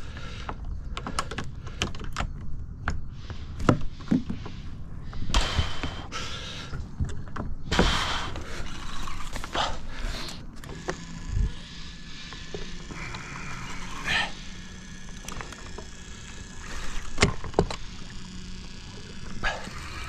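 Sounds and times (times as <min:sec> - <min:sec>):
knocks and thunks of gear: 0:00.1 - 0:06.0, 0:06.8 - 0:11.0, 0:16.7 - 0:18.0.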